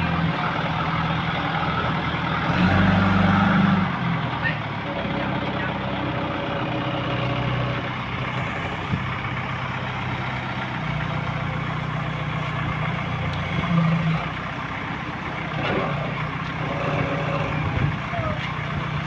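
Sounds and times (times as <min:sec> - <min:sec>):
heavy machine engine running: 0:00.0 - 0:19.0.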